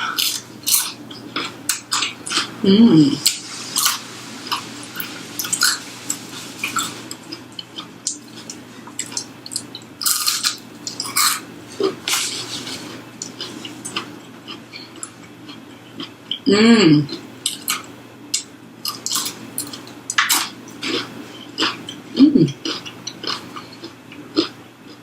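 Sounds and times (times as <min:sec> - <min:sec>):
chewing with crunches: 0:00.0 - 0:02.6, 0:03.2 - 0:16.5, 0:17.1 - 0:25.0
person humming: 0:02.6 - 0:03.4, 0:16.5 - 0:17.1, 0:22.2 - 0:22.6.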